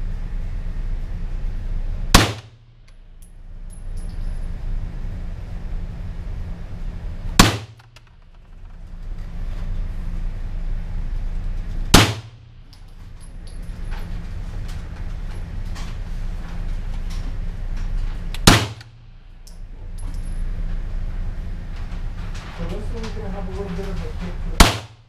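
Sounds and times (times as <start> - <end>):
steady low hum: 0.0 - 25.0
rifle shots with echo: 2.2 - 2.6, 7.4 - 8.0, 12.0 - 12.5, 18.4 - 19.0, 24.6 - 25.0.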